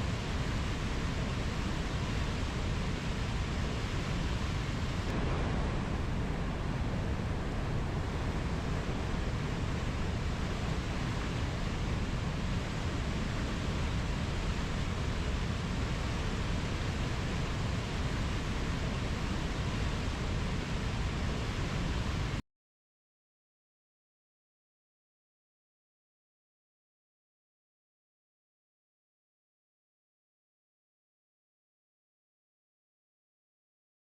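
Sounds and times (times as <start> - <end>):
steady low rushing noise: 0.0 - 22.4.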